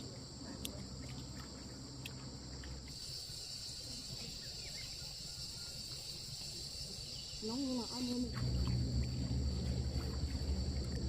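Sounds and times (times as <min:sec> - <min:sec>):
insects chirring: 0:00.0 - 0:11.0
low background rumble: 0:07.1 - 0:11.0.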